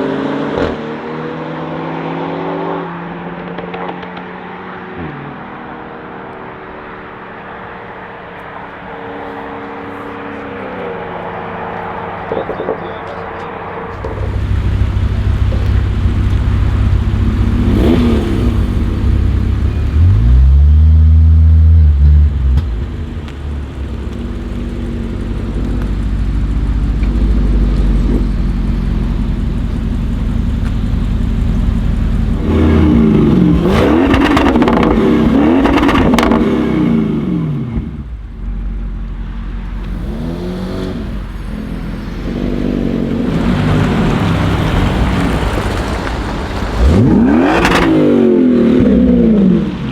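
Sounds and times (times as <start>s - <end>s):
car engine revving and accelerating: 0.0s - 49.9s.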